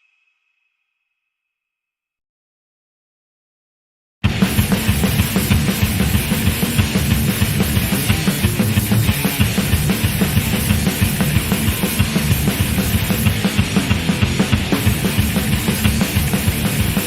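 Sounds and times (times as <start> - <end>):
fast drum kit beat: 4.2 - 17.0
metal guitars: 4.2 - 17.0.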